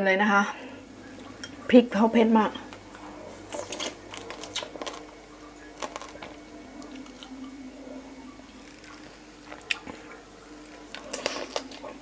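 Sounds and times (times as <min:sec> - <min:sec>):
biting and chewing crab: 0:02.9 - 0:07.4, 0:10.6 - 0:12.0.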